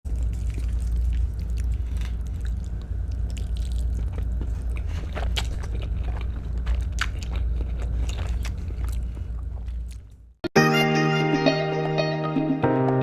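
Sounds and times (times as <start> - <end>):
chewing and mouth clicks: 0.1 - 10.4
steady low hum: 0.1 - 10.4.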